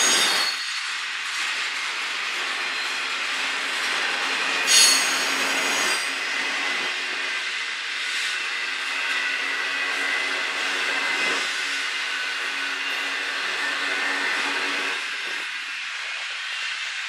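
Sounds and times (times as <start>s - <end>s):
train wheels rumbling and clattering: 0.0s - 17.0s
high-pitched wheel squeal: 4.6s - 6.4s.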